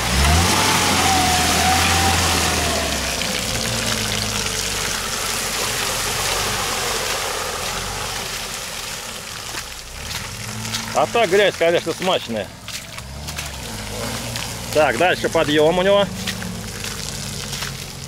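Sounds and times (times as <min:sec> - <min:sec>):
car engine revving: 0:00.0 - 0:18.0
tyres hissing through wet mud: 0:00.0 - 0:18.0.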